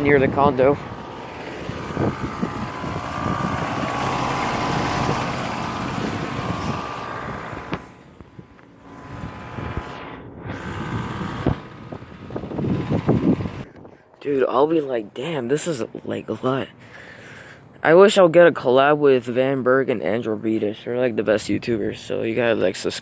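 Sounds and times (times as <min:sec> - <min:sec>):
air conditioner units running: 0:00.0 - 0:09.9, 0:10.6 - 0:13.7
faint hum: 0:00.0 - 0:13.6.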